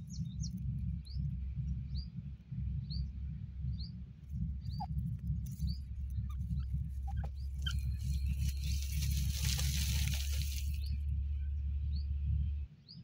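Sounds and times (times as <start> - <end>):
steady low rumble: 0.0 - 13.0
bird chirping: 4.6 - 11.0
wings flicking soil: 7.0 - 11.0.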